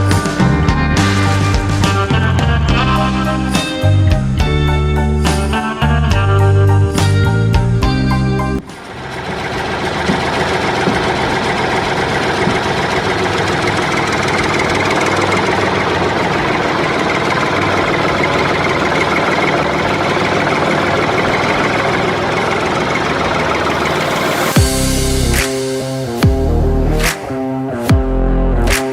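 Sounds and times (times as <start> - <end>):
motor running steadily: 8.6 - 25.3.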